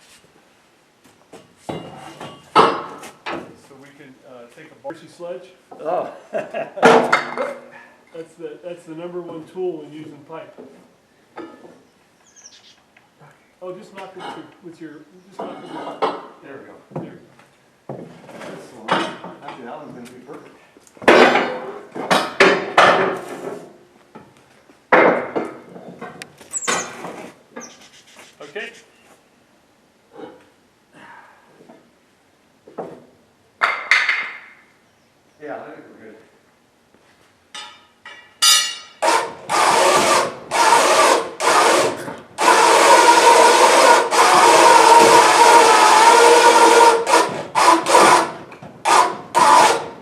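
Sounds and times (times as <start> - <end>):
machinery grinding: 39.0 - 50.0.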